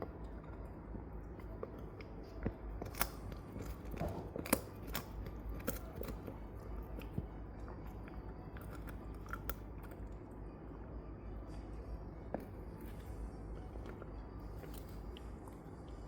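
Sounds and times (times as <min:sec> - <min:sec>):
dog gnawing a bone: 0:00.0 - 0:10.2
low hum: 0:00.0 - 0:16.0.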